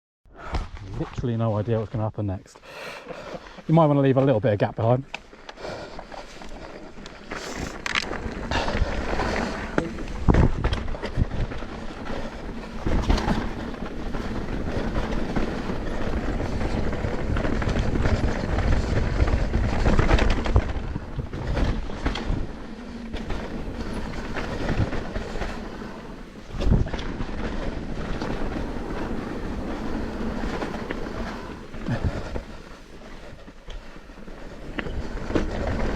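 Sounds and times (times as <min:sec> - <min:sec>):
bike tyres rolling on dirt: 0:00.4 - 0:35.9
bike rattling over bumps: 0:03.2 - 0:35.9
wind rumbling on microphone: 0:03.2 - 0:35.9.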